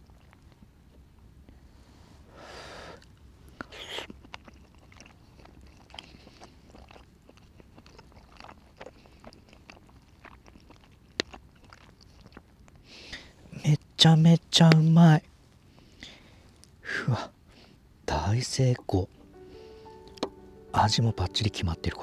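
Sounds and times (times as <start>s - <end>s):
person chewing food: 2.9s - 13.6s, 18.8s - 21.4s
wet mouth clicks: 3.0s - 6.1s
breathy sounds: 18.8s - 21.8s.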